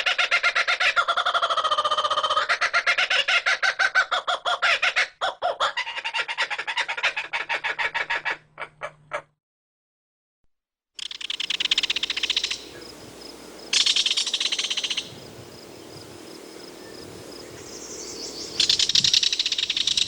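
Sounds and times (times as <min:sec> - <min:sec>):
bird chattering calls: 0:11.0 - 0:20.0.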